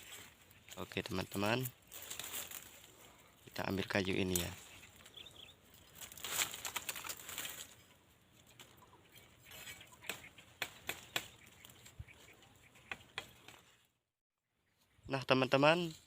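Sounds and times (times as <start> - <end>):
leafy branches rustling: 0.0 - 8.8.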